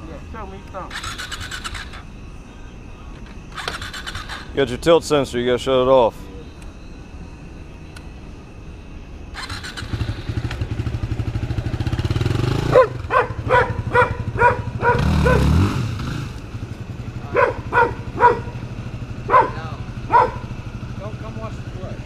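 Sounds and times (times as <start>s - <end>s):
motorcycle engine revving: 0.8s - 2.1s, 3.5s - 4.8s, 9.3s - 22.0s
dog barking: 12.7s - 15.6s, 17.3s - 18.6s, 19.2s - 20.6s.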